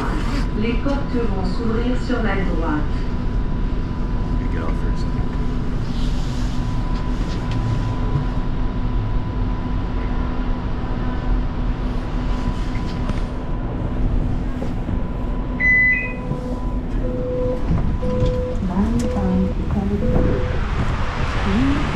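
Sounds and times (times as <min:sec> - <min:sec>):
light-rail car rumble: 0:00.0 - 0:21.9
electrical hum: 0:13.0 - 0:21.9.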